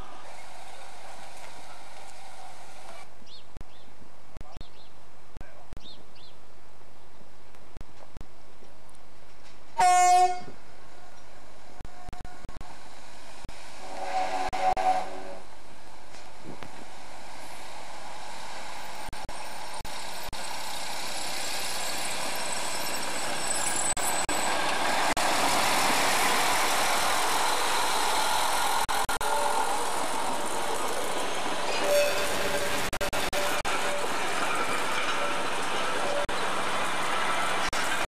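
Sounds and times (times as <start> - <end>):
railcar engine passing: 0.0 - 3.2, 9.2 - 38.0
coaches rolling on rails: 7.9 - 38.0.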